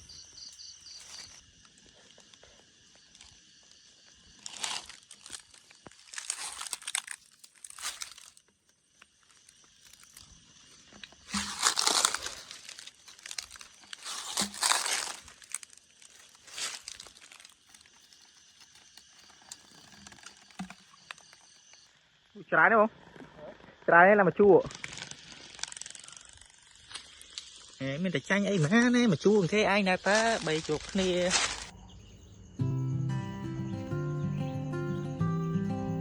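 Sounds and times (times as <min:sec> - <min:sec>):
insect drone: 0:00.0 - 0:36.0
rustling and crinkling: 0:00.8 - 0:03.5, 0:04.3 - 0:21.8, 0:30.0 - 0:31.7.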